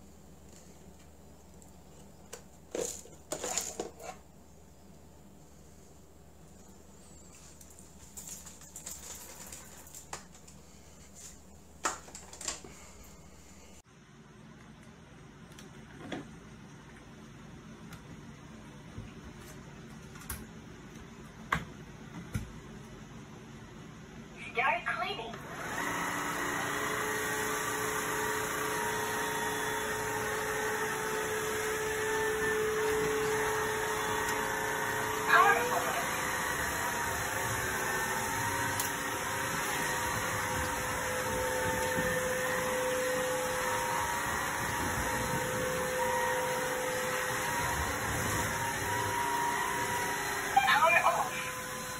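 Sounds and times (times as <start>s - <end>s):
background hum: 0.0s - 25.4s
floor cleaner motor and brush: 2.0s - 4.3s, 6.6s - 13.8s, 25.4s - 51.9s.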